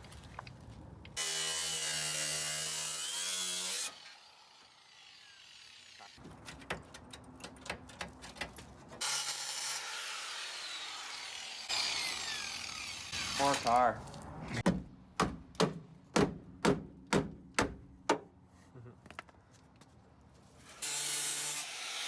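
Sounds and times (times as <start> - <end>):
power tool cutting sheet metal: 1.2 - 6.2, 9.0 - 13.8, 20.7 - 22.0.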